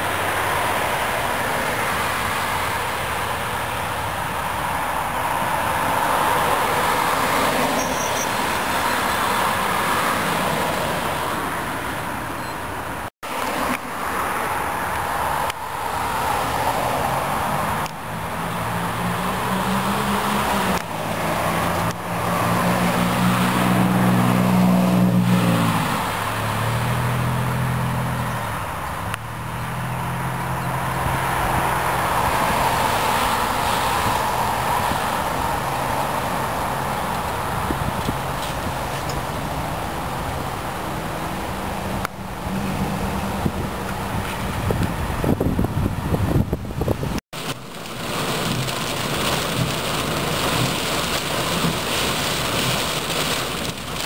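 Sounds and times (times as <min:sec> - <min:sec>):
vehicle engine humming: 0:00.0 - 0:54.0.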